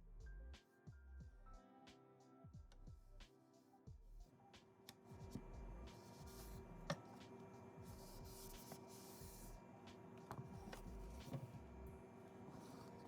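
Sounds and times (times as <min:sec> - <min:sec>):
quiet background music: 0:00.0 - 0:13.0
cloth rubbing on a surface: 0:05.2 - 0:09.6, 0:12.5 - 0:13.0.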